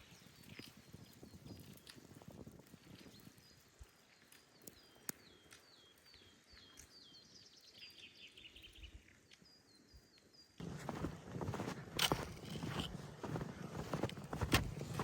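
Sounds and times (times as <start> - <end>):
footsteps crunching in snow: 10.6 - 15.0.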